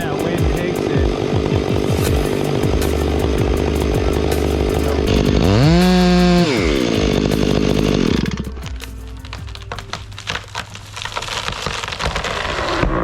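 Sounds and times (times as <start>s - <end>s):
chainsaw running and revving: 2.4s - 8.6s.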